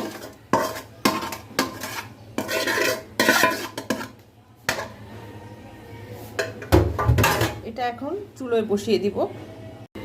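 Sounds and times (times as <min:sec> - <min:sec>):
spoon scraping cookware: 0:00.0 - 0:05.0.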